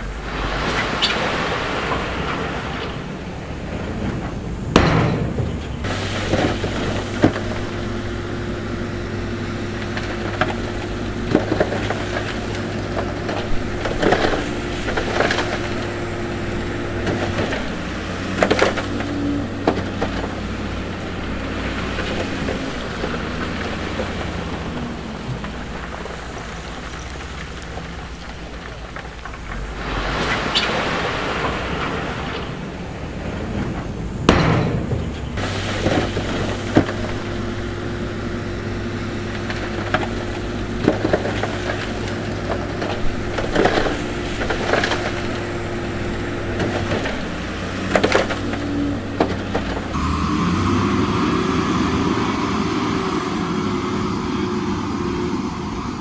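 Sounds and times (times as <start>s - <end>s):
diesel engine running under load: 1.6s - 30.2s, 31.7s - 56.0s.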